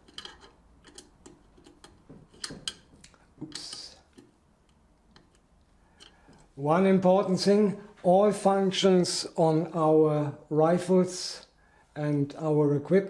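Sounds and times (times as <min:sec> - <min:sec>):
metal parts clattering: 0:00.0 - 0:02.9
metal parts clicking and tapping: 0:00.0 - 0:06.5.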